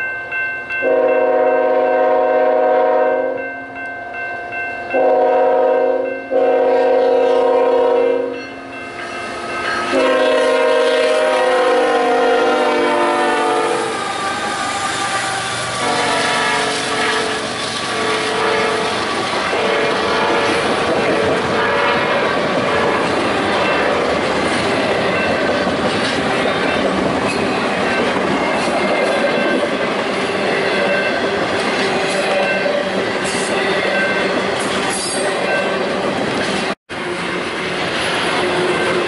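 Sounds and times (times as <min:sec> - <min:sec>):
locomotive air horn: 0:00.8 - 0:03.4, 0:05.0 - 0:08.4, 0:09.8 - 0:23.1
train wheels clattering on rails: 0:13.1 - 0:39.0.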